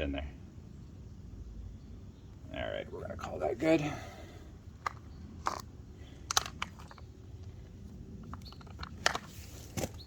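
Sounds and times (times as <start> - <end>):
small parts clicking and tapping: 4.8 - 9.4.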